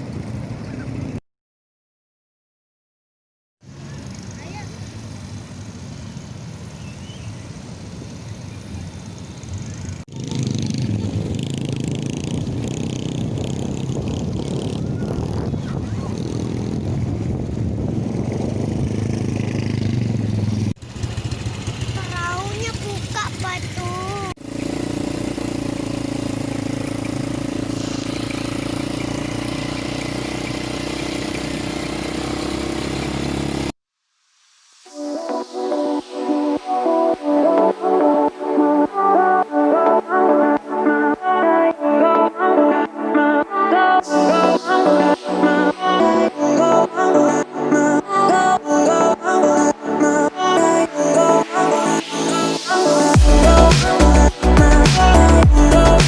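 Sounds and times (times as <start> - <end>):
motorcycle engine: 0.0 - 1.2, 3.6 - 33.8, 53.1 - 56.0
road noise: 0.0 - 1.2, 3.6 - 56.0.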